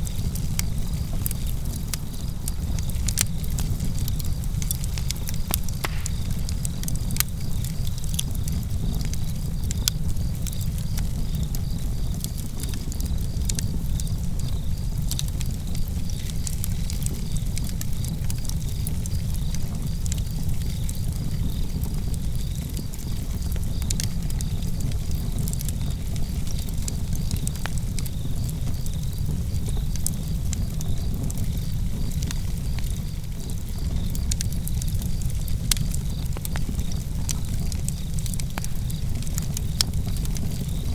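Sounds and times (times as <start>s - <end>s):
campfire crackling and popping: 0.0s - 40.9s
crickets chirping: 2.2s - 7.9s, 37.9s - 40.9s.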